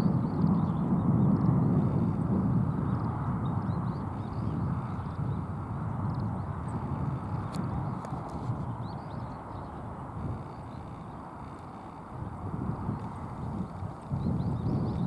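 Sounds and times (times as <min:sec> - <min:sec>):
low riverside rumble: 0:04.8 - 0:15.0.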